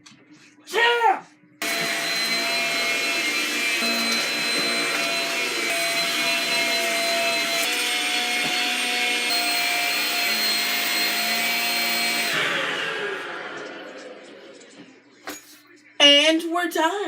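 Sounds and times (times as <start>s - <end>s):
motor winding down: 1.6s - 14.6s
vacuum motor whine: 1.6s - 14.6s.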